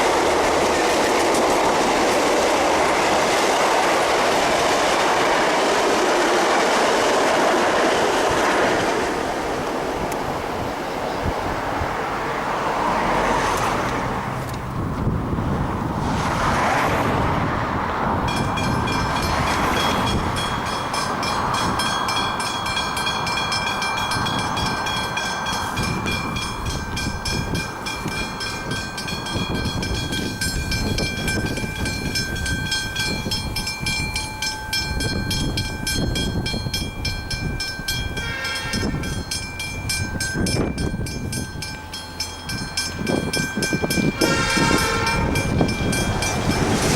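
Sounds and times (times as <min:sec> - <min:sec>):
diesel locomotive rumble: 0:00.0 - 0:46.9
level crossing bells ringing: 0:18.2 - 0:46.9
train horn: 0:38.1 - 0:39.1, 0:44.0 - 0:45.7.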